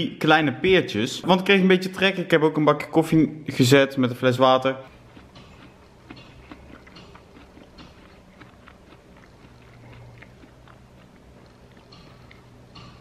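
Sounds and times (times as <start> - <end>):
person chewing pear: 4.9 - 13.0.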